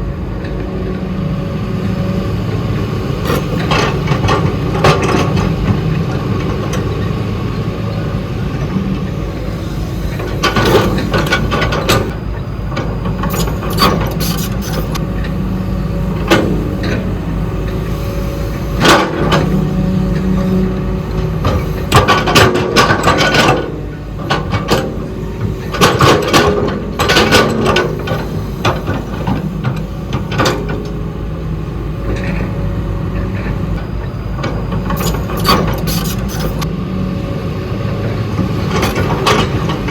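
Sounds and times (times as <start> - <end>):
excavator diesel engine: 0.0 - 39.9
metallic clanks and knocks: 12.7 - 15.0.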